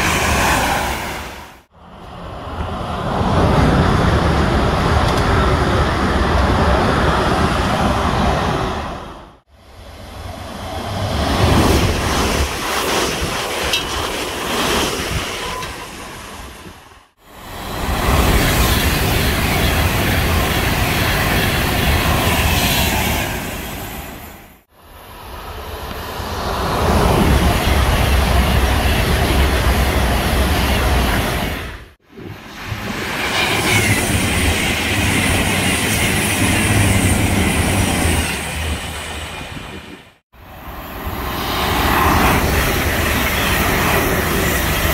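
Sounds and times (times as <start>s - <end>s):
train passing at speed: 0.0s - 44.9s
train wheels rumbling on rail: 25.8s - 40.2s.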